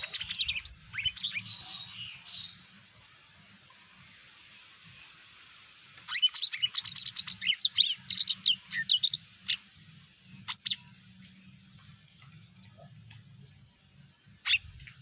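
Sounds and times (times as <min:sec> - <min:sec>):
bird chirping and whistling: 0:00.0 - 0:02.6.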